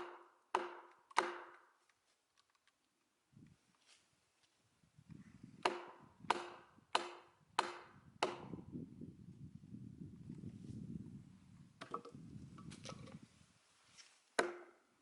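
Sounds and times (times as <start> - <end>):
axe chopping into log: 0.0 - 1.6, 5.6 - 8.6, 14.4 - 14.7
low rustle of handling: 1.9 - 5.4, 12.3 - 14.4.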